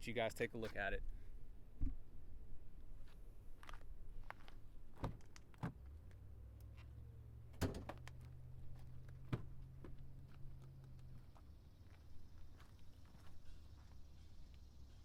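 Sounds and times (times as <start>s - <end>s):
truck door and hood clunks: 5.0s - 5.8s, 7.6s - 8.1s, 9.2s - 10.0s.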